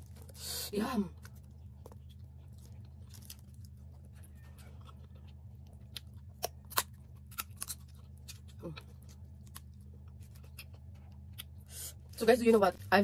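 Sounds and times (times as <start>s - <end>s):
person chewing: 0.0s - 12.2s
steady low hum: 0.0s - 13.0s
crab shell crunching: 1.2s - 11.6s.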